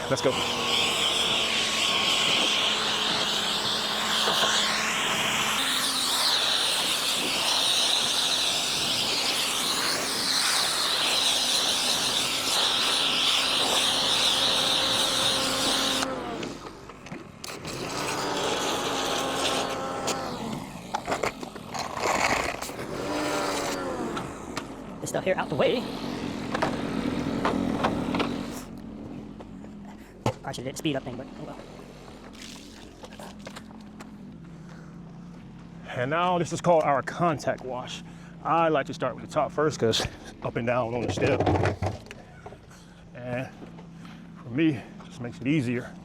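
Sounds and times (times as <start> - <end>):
pressure washer spraying water: 0.0 - 16.6, 17.5 - 20.5
machine hum: 12.2 - 30.2.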